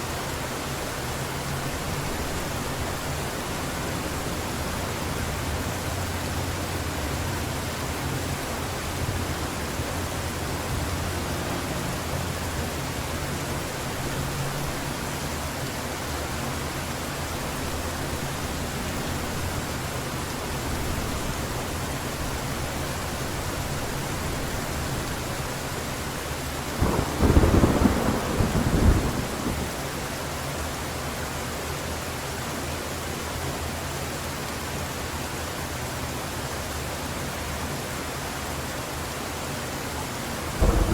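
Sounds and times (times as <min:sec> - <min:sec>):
heavy rain falling: 0:00.0 - 0:40.9
low thunder rumble: 0:26.4 - 0:30.0, 0:40.5 - 0:40.9
loud thunderclap: 0:26.8 - 0:29.8, 0:40.6 - 0:40.9.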